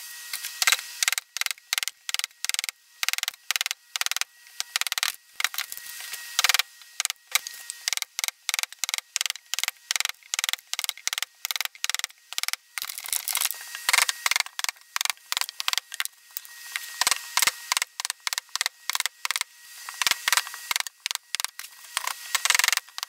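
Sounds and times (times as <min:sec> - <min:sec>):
wood chips splitting: 0:04.6 - 0:23.0.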